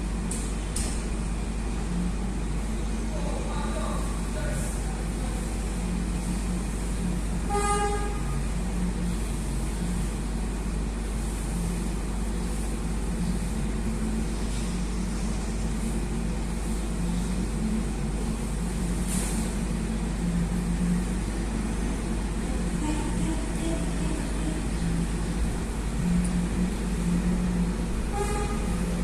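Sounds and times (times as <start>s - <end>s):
truck diesel engine running: 0.0s - 29.0s
truck horn toot: 7.5s - 8.5s, 28.1s - 29.0s.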